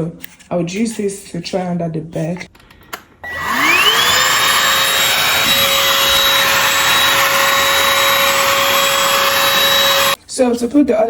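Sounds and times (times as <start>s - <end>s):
handheld vacuum cleaner running: 3.2s - 10.2s.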